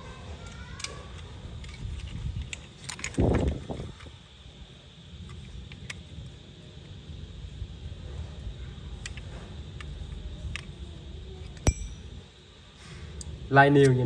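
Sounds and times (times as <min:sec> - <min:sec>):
low hum: 0:05.2 - 0:13.5
metal lighters clicking and clinking: 0:11.6 - 0:12.2.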